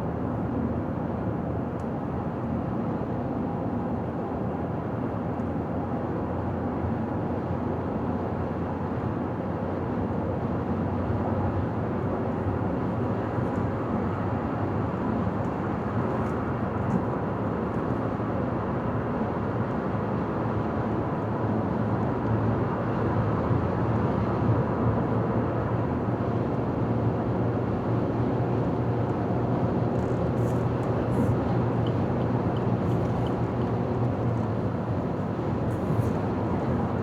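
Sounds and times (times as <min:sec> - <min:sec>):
car road noise: 0:27.6 - 0:37.0.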